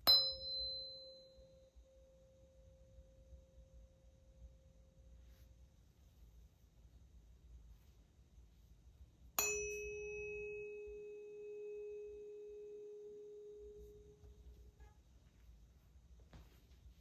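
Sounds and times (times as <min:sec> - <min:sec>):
tuning fork ringing: 0:00.0 - 0:05.2, 0:09.4 - 0:15.2.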